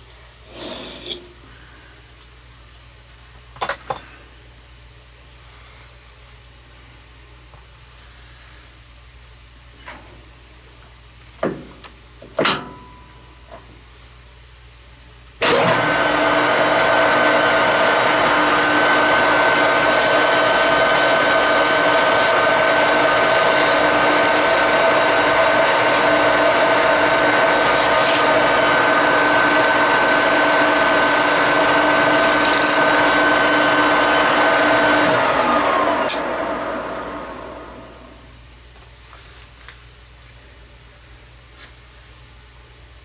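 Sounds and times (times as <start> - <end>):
metal lathe running: 15.4 - 37.8
high rasping hiss of cutting: 17.3 - 32.9.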